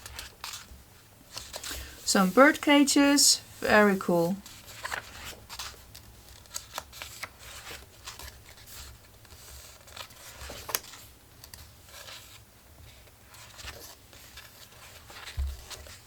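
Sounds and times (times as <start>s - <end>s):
paper rustling: 1.3s - 2.8s, 3.7s - 16.0s
soft clicks and crackles: 9.2s - 12.4s.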